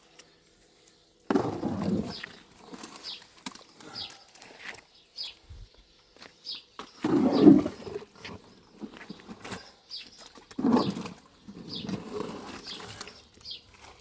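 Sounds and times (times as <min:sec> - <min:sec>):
small bird chirping: 0:01.8 - 0:08.0, 0:08.6 - 0:14.0
scraping or rustling noise: 0:07.0 - 0:14.0.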